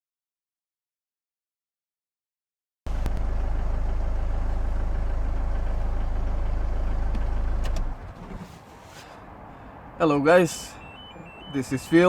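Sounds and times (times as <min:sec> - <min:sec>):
engine idling: 0:02.9 - 0:08.1.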